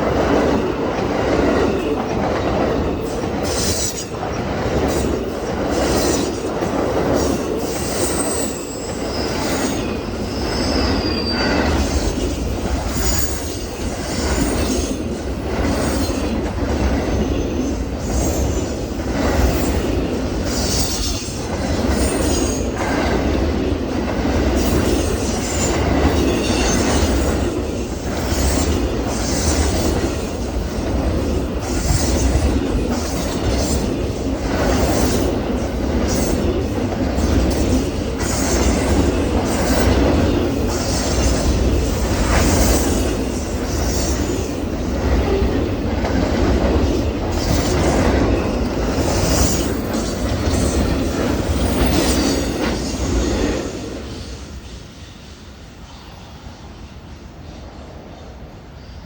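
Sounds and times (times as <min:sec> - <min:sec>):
train wheels rumbling on rail: 0:00.0 - 0:59.0
high wheel squeal: 0:07.8 - 0:12.0.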